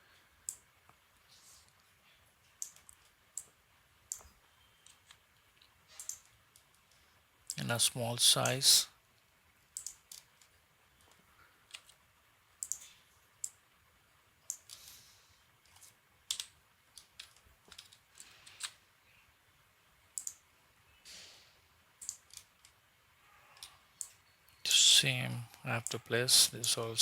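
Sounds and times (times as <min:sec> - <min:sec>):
mouse and keyboard clicks: 0:02.6 - 0:03.5, 0:05.9 - 0:06.7, 0:09.8 - 0:10.5, 0:11.7 - 0:12.0, 0:12.6 - 0:13.6, 0:14.5 - 0:15.0, 0:15.7 - 0:18.8, 0:20.2 - 0:20.4, 0:22.0 - 0:22.8.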